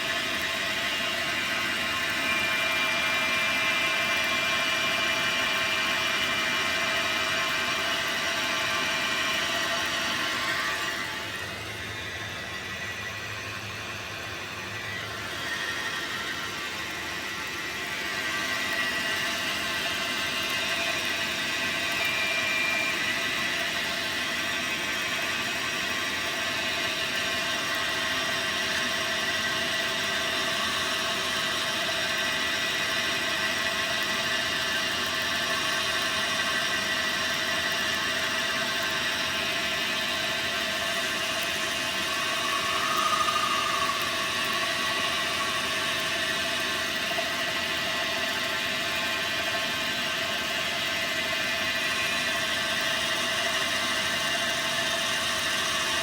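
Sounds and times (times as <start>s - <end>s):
lathe machine whine: 0.0s - 56.0s
short squeal: 41.7s - 46.8s.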